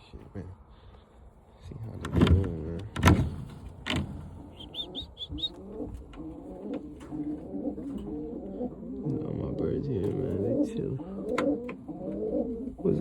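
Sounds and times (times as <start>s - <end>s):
pigeons cooing: 3.9s - 13.0s.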